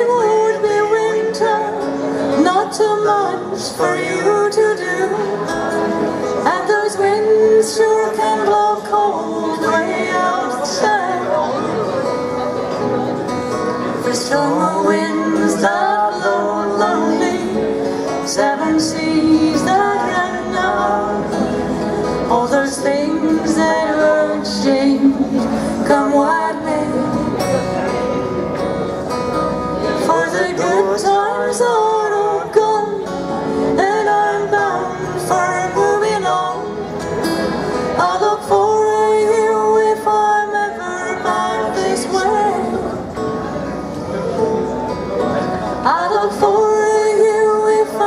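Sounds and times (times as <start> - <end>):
acoustic guitar strumming: 0.0 - 48.0
person singing folk song: 0.0 - 48.0.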